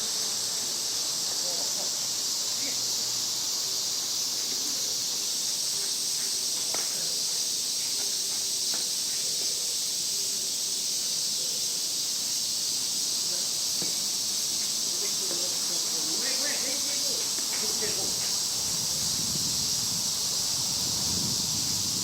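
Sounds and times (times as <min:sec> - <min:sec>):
insects droning in chorus: 0:00.0 - 0:22.0.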